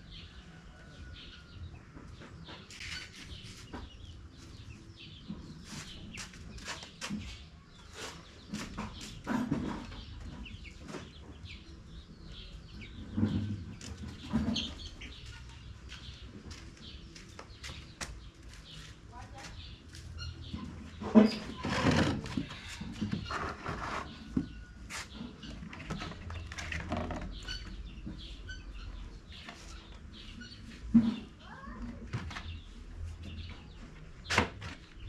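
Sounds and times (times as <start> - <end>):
chickens clucking: 0.1 - 18.9.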